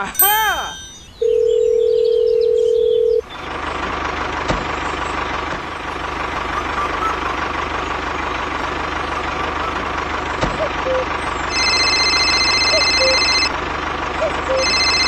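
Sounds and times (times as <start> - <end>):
tractor engine puttering: 0.0 - 15.0
electronic beep: 12.6 - 13.4.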